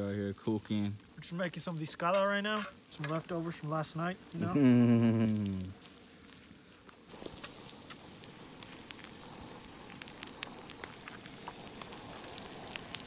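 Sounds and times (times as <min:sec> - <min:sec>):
meat and tortillas sizzling on griddle: 0:00.0 - 0:13.0.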